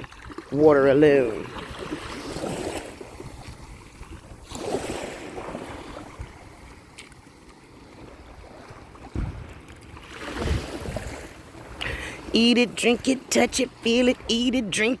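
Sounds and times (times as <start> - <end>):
wind buffeting microphone: 0.0 - 7.0, 7.8 - 12.3
ocean surf washing on shore: 0.0 - 15.0.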